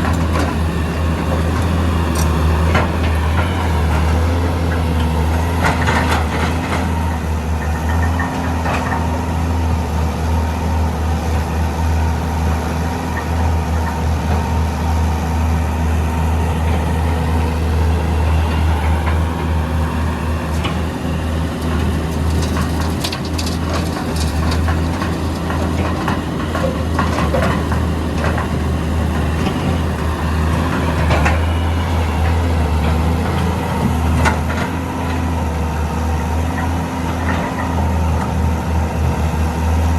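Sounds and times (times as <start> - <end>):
excavator diesel engine running: 0.0 - 39.9
knocks and clatters: 21.5 - 28.6.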